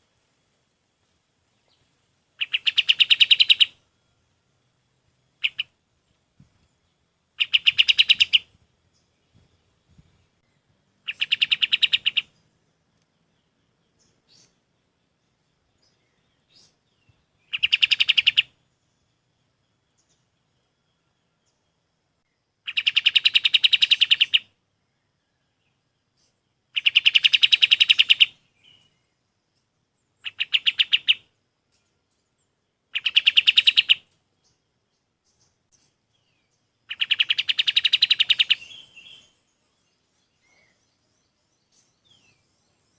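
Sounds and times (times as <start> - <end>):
songbird trilling: 2.4 - 3.8, 5.4 - 5.8, 7.4 - 9.5, 11.0 - 12.5, 15.8 - 18.6, 22.6 - 24.6, 26.2 - 29.1, 30.0 - 31.4, 32.9 - 34.6, 35.3 - 42.9.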